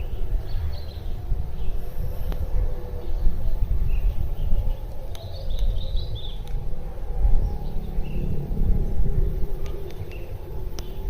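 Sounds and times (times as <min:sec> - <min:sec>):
wind rumble on microphone: 0:00.0 - 0:11.0
bird chirps: 0:03.0 - 0:06.6.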